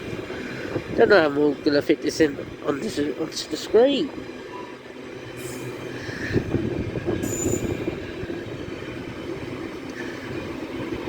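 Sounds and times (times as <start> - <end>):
train wheels rumbling on rails: 0.0 - 11.0
high-pitched squeal: 5.4 - 8.1.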